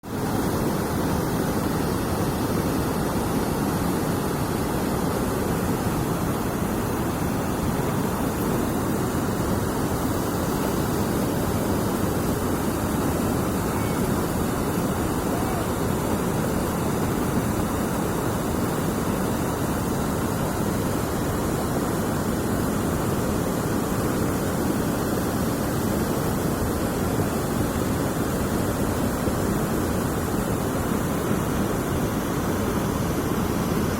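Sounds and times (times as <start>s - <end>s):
water rushing through dam: 0.0s - 33.9s.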